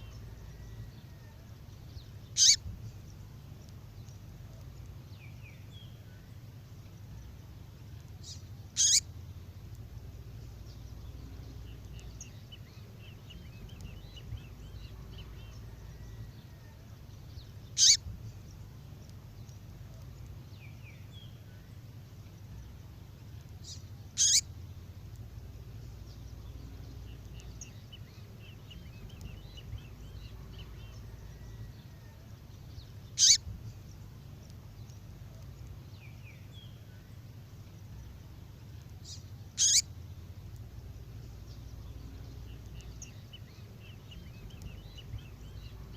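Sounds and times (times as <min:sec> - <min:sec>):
low steady hum: 0:00.0 - 0:45.9
faint twittering: 0:02.3 - 0:02.6, 0:08.2 - 0:09.2, 0:17.4 - 0:18.5, 0:23.6 - 0:24.5, 0:33.1 - 0:33.5, 0:39.0 - 0:40.1.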